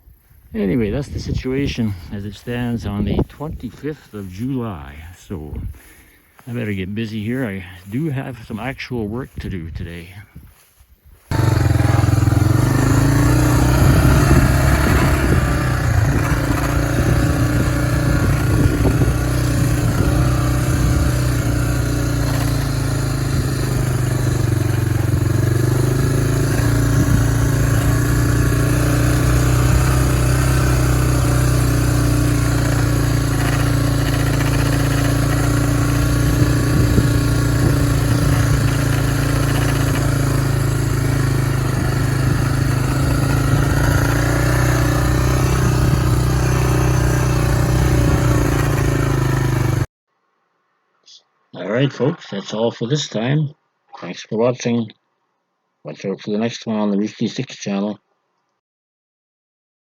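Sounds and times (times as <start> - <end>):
vehicle engine running under load: 11.3 - 49.9.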